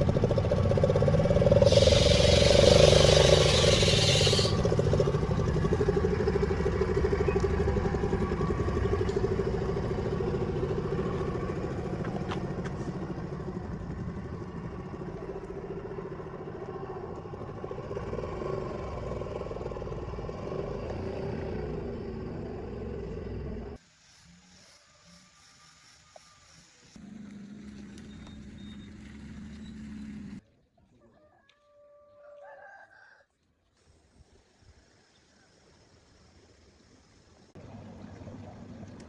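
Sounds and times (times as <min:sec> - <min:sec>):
car engine running: 0:00.0 - 0:23.8.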